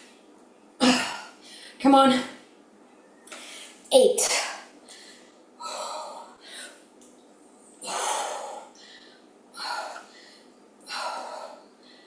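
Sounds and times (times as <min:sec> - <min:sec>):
woman breathing hard: 0:04.8 - 0:06.9, 0:07.8 - 0:12.0.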